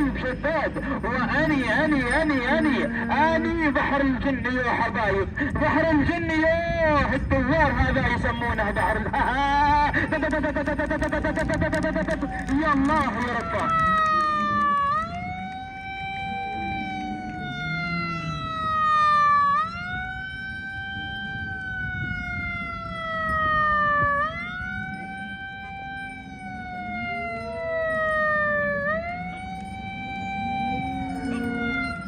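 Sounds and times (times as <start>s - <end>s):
siren wailing: 0.0s - 32.0s.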